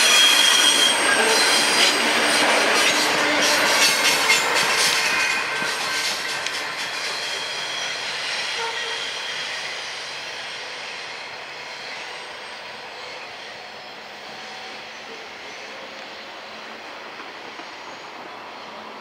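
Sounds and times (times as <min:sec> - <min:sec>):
freight train rolling on rails: 0:00.0 - 0:19.0.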